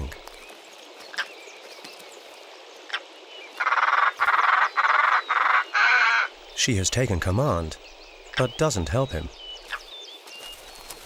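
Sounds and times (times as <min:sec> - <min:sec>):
bird giving harsh rasping calls: 0:03.6 - 0:06.4.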